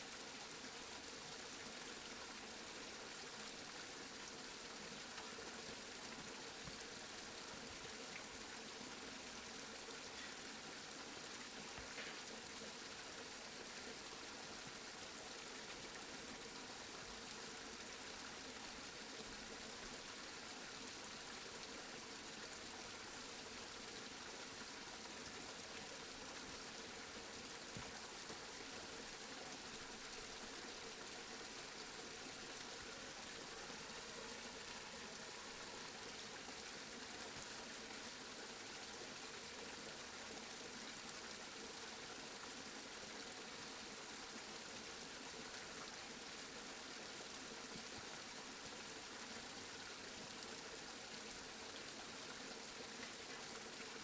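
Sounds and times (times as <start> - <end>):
steady rain: 26.4 - 38.8.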